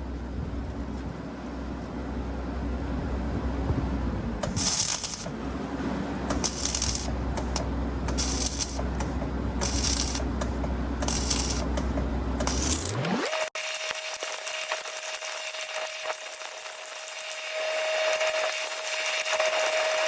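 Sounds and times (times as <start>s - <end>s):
engine drone: 0.0s - 20.0s
grinder scraping steel: 4.5s - 5.3s, 6.4s - 7.6s, 8.2s - 8.8s, 9.6s - 10.3s, 11.0s - 11.8s, 12.4s - 20.0s
rising whine: 11.0s - 20.0s.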